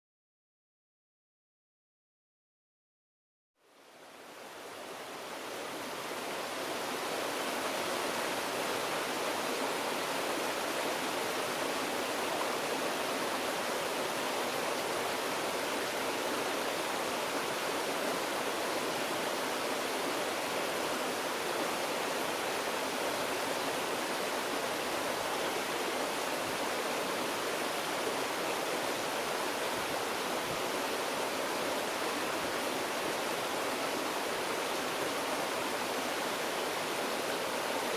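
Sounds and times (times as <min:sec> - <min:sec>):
stream babbling over stones: 0:04.8 - 0:37.9.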